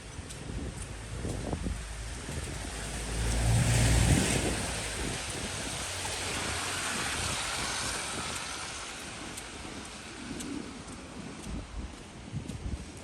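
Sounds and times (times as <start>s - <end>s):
vehicle tyres hissing on wet street: 0.0s - 13.0s
wind rumble on microphone: 0.0s - 13.0s.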